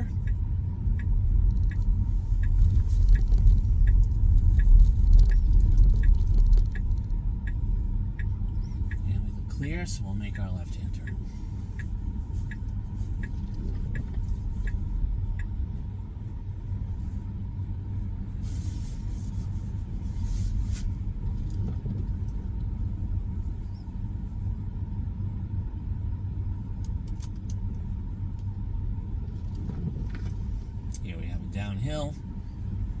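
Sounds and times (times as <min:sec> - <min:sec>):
turn signal ticking: 0:00.0 - 0:24.0
tyre and road rumble: 0:00.0 - 0:24.5.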